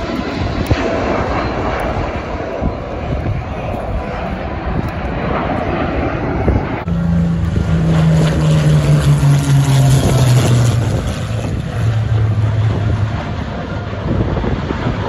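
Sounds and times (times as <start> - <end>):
aircraft engine flying past: 0.0 - 15.0
wind noise on microphone: 0.0 - 15.0.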